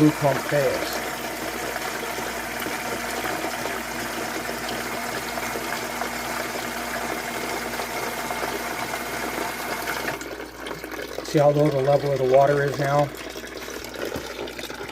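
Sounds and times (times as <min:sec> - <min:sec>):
water rushing: 0:00.0 - 0:07.8
electric pump humming: 0:00.0 - 0:14.9.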